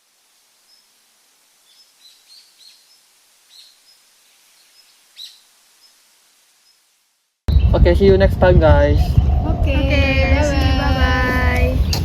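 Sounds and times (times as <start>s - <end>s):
light hiss: 0.0s - 7.5s
birds chirping: 1.6s - 6.9s, 8.7s - 12.0s.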